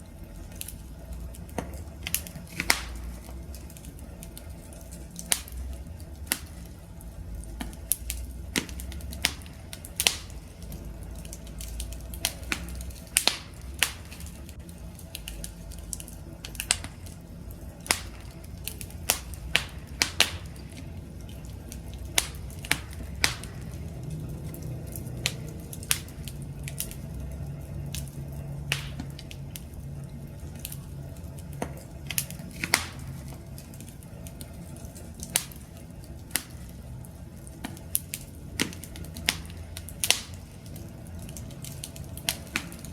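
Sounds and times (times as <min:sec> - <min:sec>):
campfire crackling: 0:00.0 - 0:42.9.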